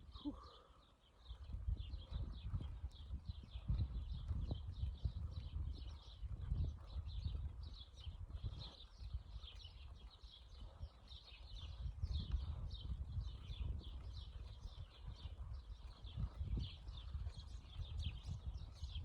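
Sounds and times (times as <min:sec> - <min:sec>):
wind rumbling on microphone: 0:00.0 - 0:00.4, 0:01.2 - 0:19.0.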